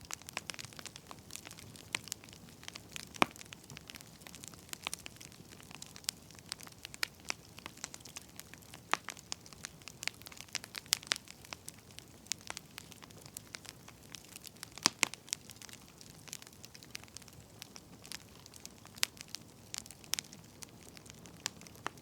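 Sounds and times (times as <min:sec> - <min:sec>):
firewood crackling and popping: 0:00.0 - 0:22.0.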